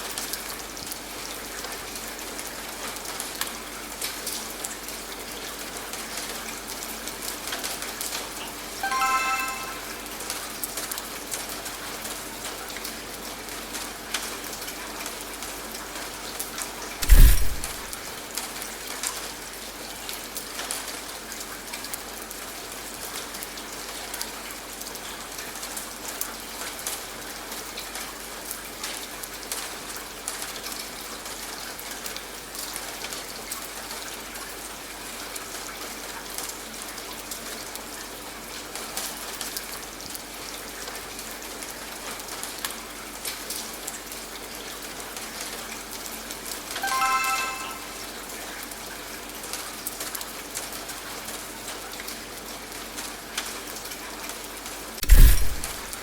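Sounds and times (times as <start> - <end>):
rain on a hard surface: 0.0 - 9.7, 10.3 - 17.2, 17.8 - 56.0
loud deep thump: 17.0 - 17.8.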